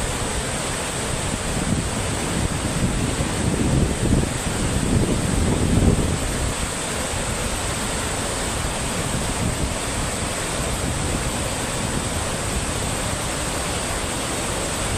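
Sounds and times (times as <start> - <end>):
water rushing: 0.0 - 14.9
wind buffeting microphone: 0.2 - 14.9.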